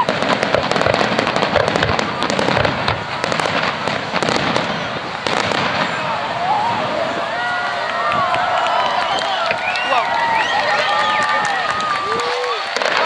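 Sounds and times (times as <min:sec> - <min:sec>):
firework shells bursting: 0:00.0 - 0:06.0.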